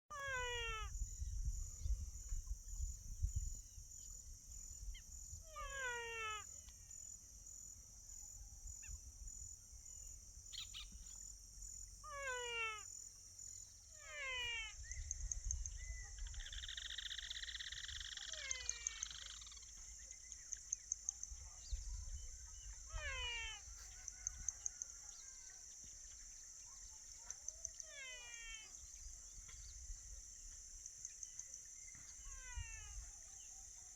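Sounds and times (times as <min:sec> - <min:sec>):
high insect drone: 0:00.1 - 0:33.9
wind rumble on microphone: 0:00.2 - 0:05.7, 0:14.8 - 0:16.7, 0:21.4 - 0:24.6.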